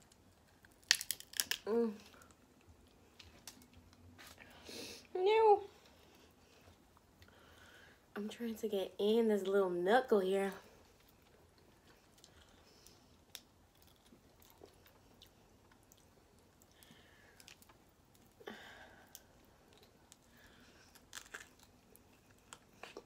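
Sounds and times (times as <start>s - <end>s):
crab shell clicks: 0.8s - 1.7s
chewing and wet mouth sounds: 10.9s - 18.4s, 19.1s - 23.0s.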